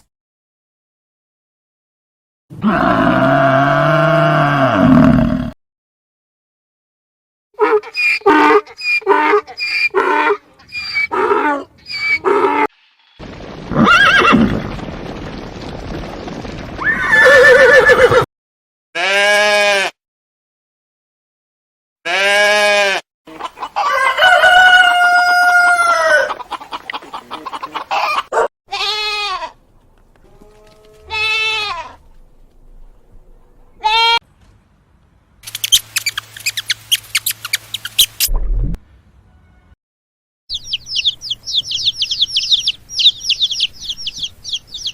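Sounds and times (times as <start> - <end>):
chickens clucking: 23.3 - 25.2, 25.9 - 28.4
rooster crowing: 23.8 - 26.4.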